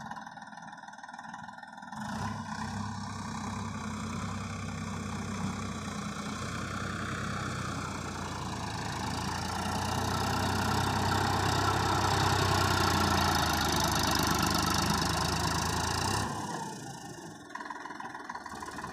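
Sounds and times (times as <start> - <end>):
tractor diesel engine running: 0.0 - 18.9.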